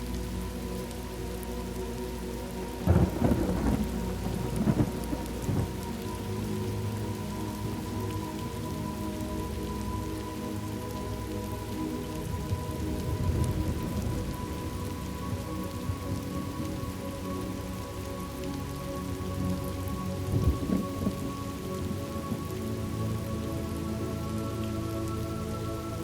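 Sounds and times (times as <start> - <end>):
rain falling: 0.0 - 26.0
soft background music: 0.0 - 26.0
thunder rolling: 2.9 - 5.7.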